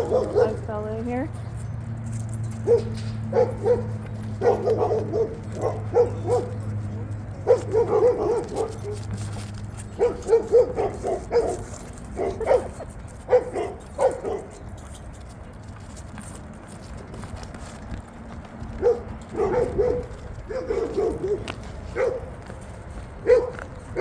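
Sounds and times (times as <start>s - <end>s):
dog barking: 0.0s - 0.7s, 2.6s - 14.6s, 18.7s - 22.4s, 23.2s - 24.0s.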